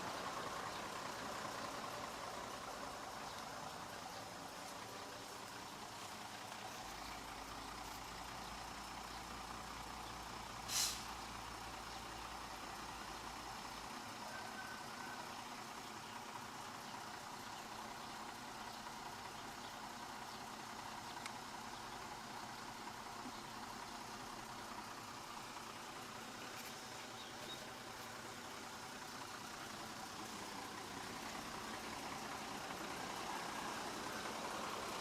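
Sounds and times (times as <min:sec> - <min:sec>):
heavy diesel engine running: 0:00.0 - 0:35.0
short sharp hiss: 0:10.6 - 0:11.2.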